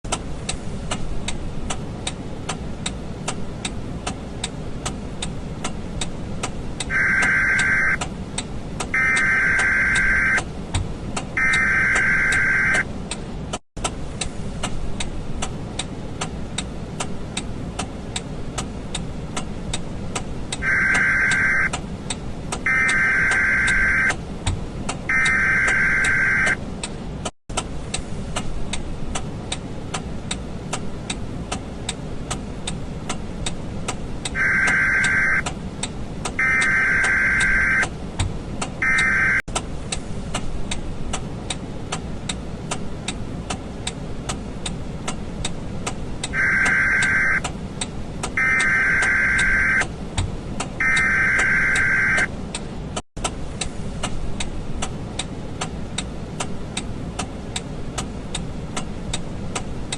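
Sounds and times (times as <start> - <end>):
regular ticking: 0.1 - 59.9
steady low rumble: 0.1 - 59.9
long beeps: 6.9 - 8.0, 9.0 - 10.4, 11.4 - 12.8, 20.6 - 21.7, 22.7 - 24.1, 25.1 - 26.6, 34.4 - 35.4, 36.4 - 37.8, 38.8 - 39.4, 46.4 - 47.4, 48.4 - 49.8, 50.8 - 52.3.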